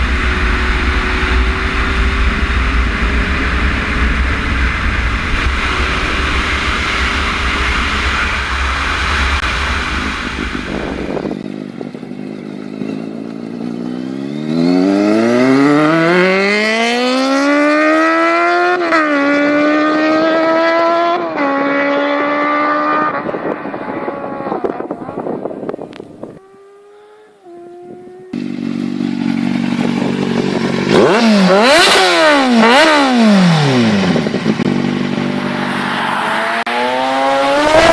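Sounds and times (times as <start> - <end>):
rushing noise with low rumble: 0.0 - 13.2
sportbike engine accelerating: 0.0 - 37.9.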